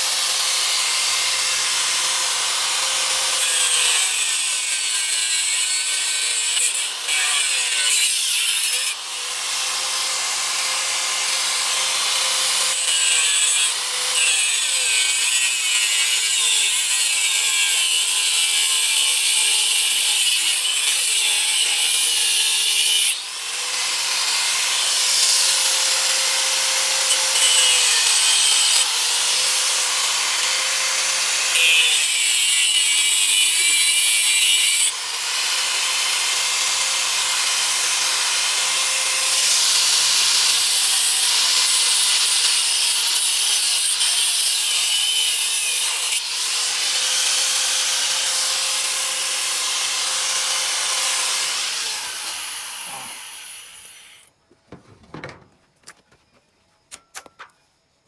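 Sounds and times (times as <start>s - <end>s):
electric power tool rasping: 48.9s - 54.2s.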